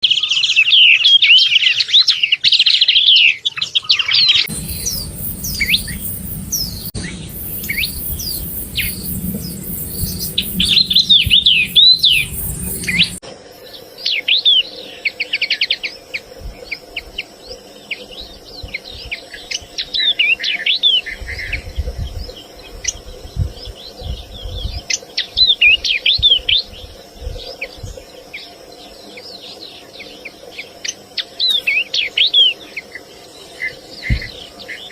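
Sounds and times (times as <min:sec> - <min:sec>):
bird chirps and whistles: 0:04.4 - 0:13.2.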